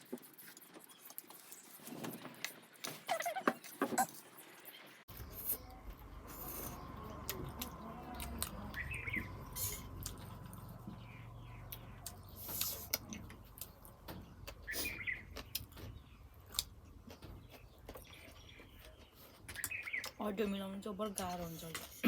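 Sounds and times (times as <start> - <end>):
person chewing noodles: 0.0 - 4.1, 9.4 - 10.7, 11.7 - 20.2
bird chirping: 3.1 - 21.6.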